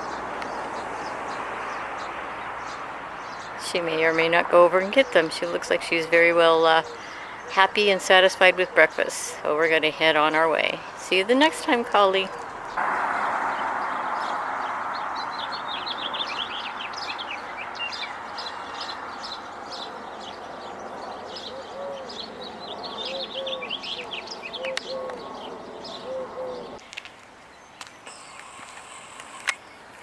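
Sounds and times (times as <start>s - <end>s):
songbirds chirping: 0.0s - 30.0s
low cooing notes: 21.2s - 26.8s.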